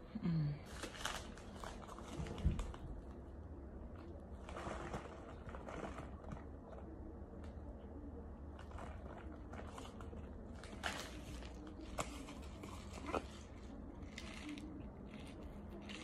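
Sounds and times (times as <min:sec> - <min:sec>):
mouth chewing crunchy food: 0:08.6 - 0:16.0.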